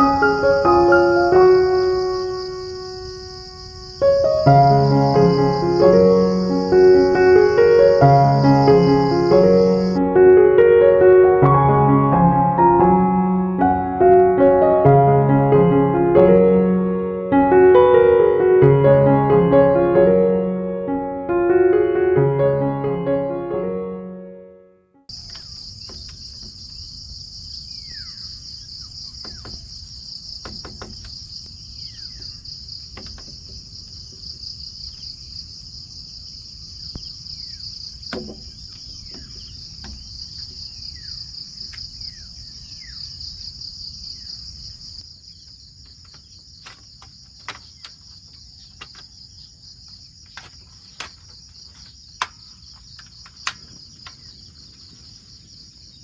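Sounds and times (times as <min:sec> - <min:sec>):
insects trilling: 0:00.0 - 0:10.0, 0:25.1 - 0:56.0
sharp clicks: 0:45.9 - 0:49.1, 0:50.3 - 0:54.2.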